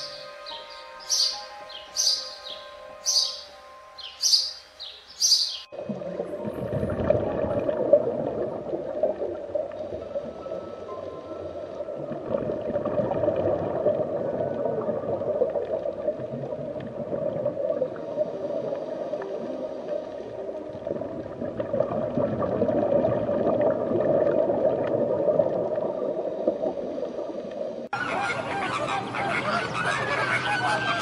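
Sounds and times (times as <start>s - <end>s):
underwater bubbling and gurgling: 5.7s - 28.0s.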